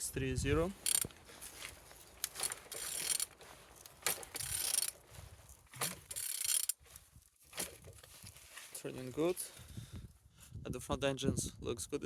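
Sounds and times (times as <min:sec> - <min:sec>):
wrench ratcheting engine: 0:00.8 - 0:01.2, 0:02.2 - 0:03.4, 0:04.0 - 0:05.0, 0:05.8 - 0:06.8.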